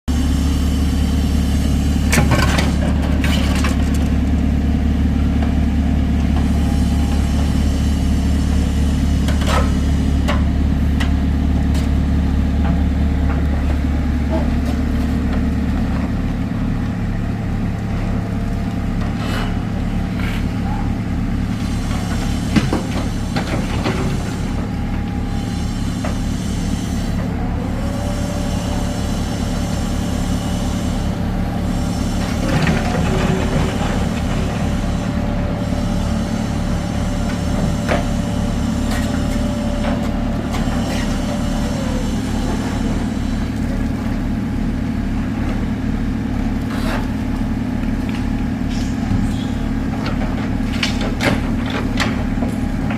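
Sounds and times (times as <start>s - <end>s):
excavator diesel engine running: 0.1s - 52.9s
high whine: 20.6s - 43.7s.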